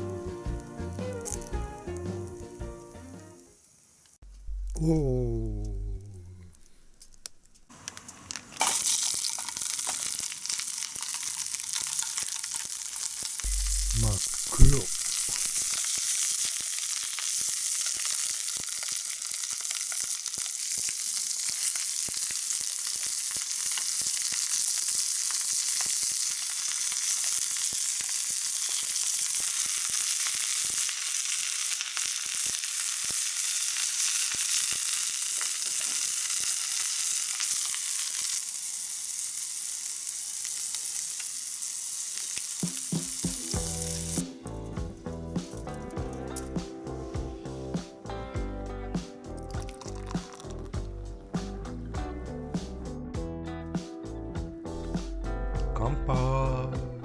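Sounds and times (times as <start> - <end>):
food sizzling in a pan: 0.0 - 4.2, 6.6 - 44.7, 49.0 - 50.7.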